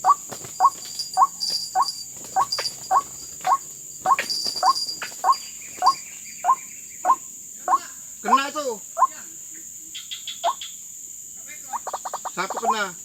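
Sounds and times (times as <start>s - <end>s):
waterhen calling: 0.0s - 9.1s
crickets droning: 0.0s - 13.0s.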